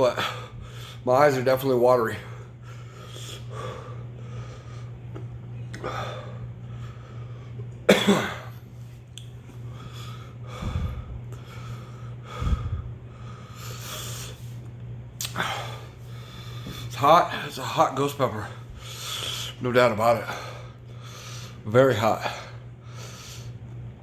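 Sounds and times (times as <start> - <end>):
man breathing hard through mouth: 9.6 - 14.5.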